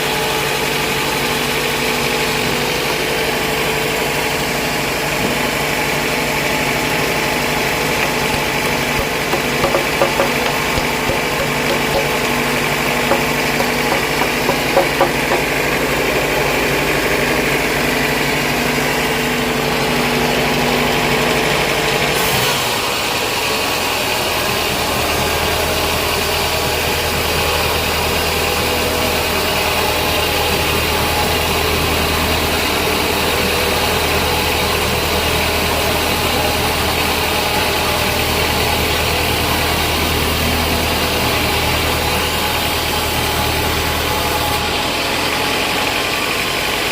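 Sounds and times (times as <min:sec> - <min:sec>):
sawmill machinery humming: 0:00.0 - 0:21.2.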